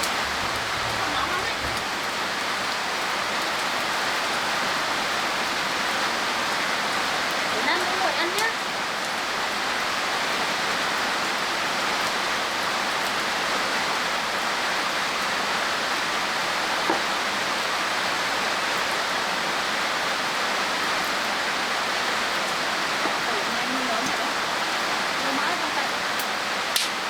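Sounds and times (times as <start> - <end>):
steady rain: 0.0 - 27.0
sharp tick: 26.8 - 27.0.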